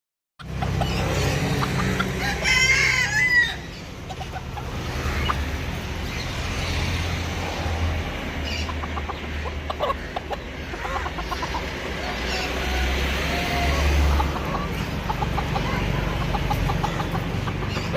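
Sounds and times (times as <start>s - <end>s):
chicken clucks: 0.4s - 2.7s, 4.0s - 6.3s, 8.4s - 17.9s
rooster crowing: 2.1s - 3.7s.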